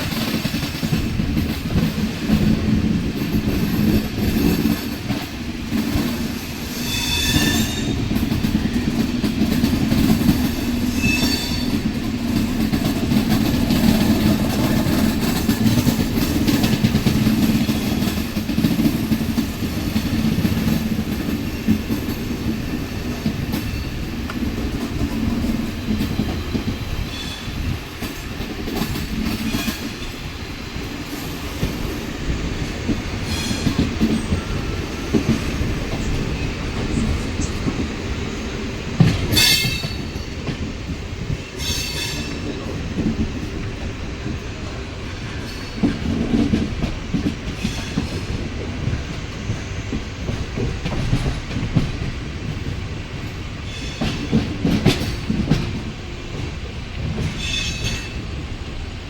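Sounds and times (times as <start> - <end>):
train wheels clattering over rail joints: 0.0 - 58.8
high wheel squeals: 6.7 - 8.0, 10.7 - 11.8.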